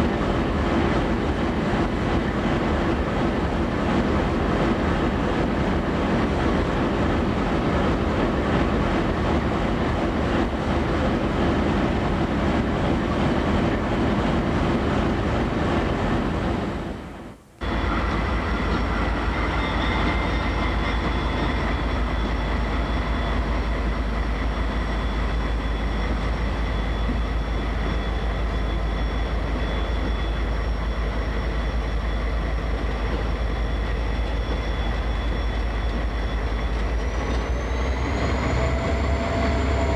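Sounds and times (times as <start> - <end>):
freight train rolling on rails: 0.0 - 39.9
high-pitched whine: 17.6 - 39.9.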